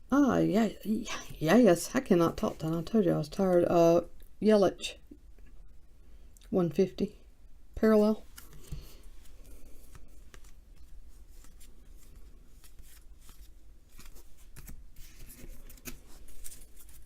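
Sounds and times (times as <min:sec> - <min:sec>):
cards flicking and rustling: 0:08.2 - 0:17.0.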